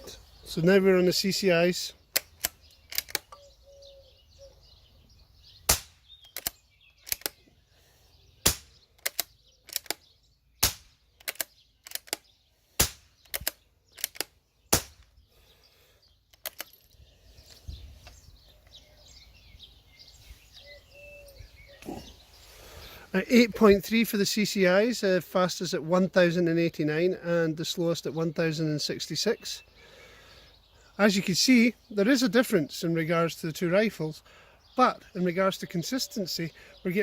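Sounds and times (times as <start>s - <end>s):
rifle bolt clicks: 2.1s - 3.4s, 6.2s - 7.4s, 8.5s - 10.0s, 11.2s - 12.2s, 13.2s - 15.1s, 16.3s - 16.9s.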